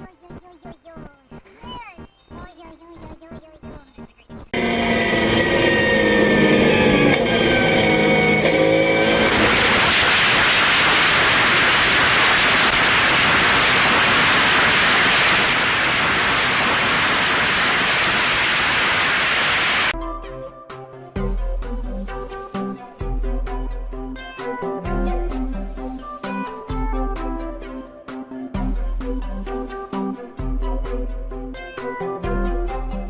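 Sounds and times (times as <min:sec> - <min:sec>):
rushing roar of moving vehicle: 0:04.6 - 0:10.2
car engine revving: 0:04.6 - 0:13.3.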